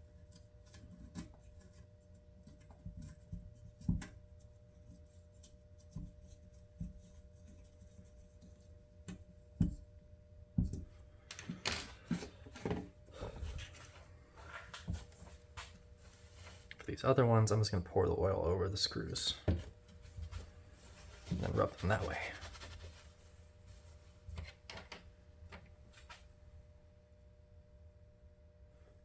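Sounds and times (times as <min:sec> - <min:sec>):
rubbing and scraping: 0:20.0 - 0:24.6.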